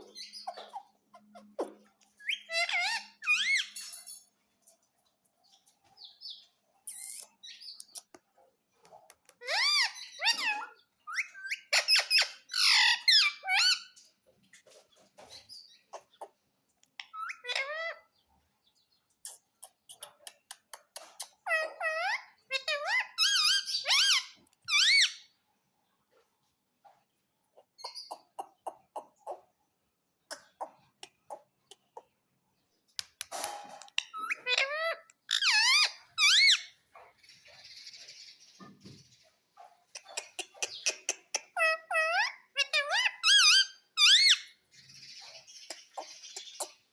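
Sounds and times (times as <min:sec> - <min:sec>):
parrot squawking: 0:00.0 - 0:04.0, 0:09.4 - 0:14.0, 0:17.0 - 0:18.0, 0:21.4 - 0:25.3, 0:34.0 - 0:36.8, 0:40.0 - 0:44.5.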